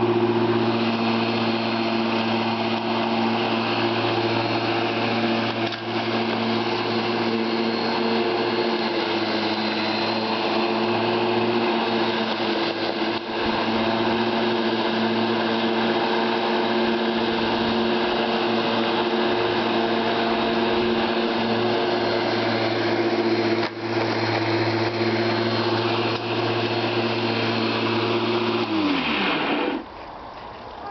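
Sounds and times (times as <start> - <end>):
lawnmower running: 0.0 - 30.1.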